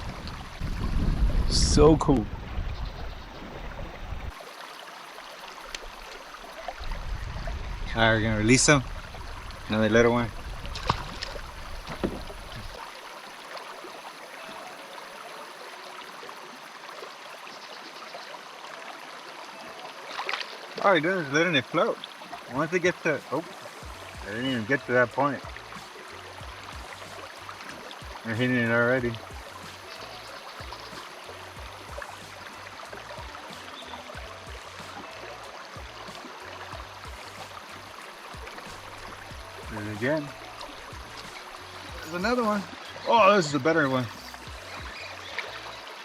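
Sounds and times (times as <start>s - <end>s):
low thumps on microphone: 0.0s - 4.3s, 6.7s - 12.8s
river water running: 0.0s - 46.0s.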